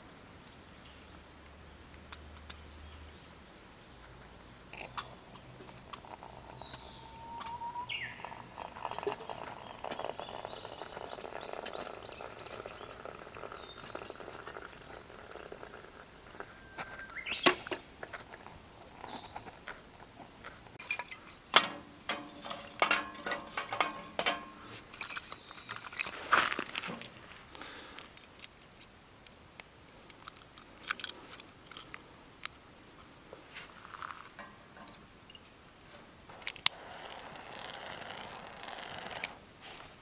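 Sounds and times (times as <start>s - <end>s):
metal utensils clinking on cookware: 20.8s - 26.2s.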